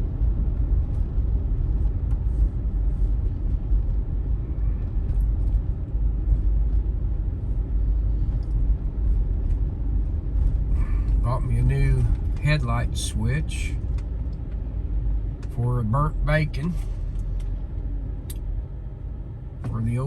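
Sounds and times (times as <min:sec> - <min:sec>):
engine and road rumble in vehicle: 0:00.0 - 0:20.0.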